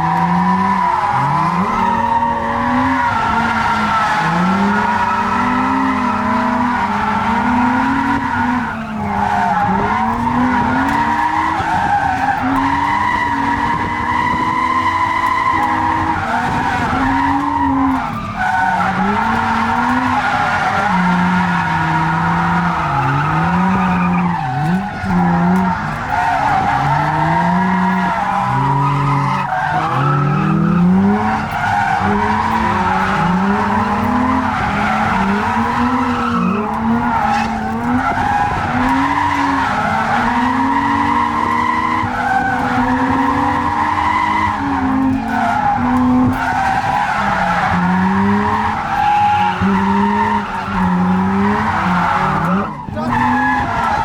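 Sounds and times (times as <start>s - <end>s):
car engine revving: 0.0s - 54.0s
tyres squealing and skidding: 0.0s - 54.0s.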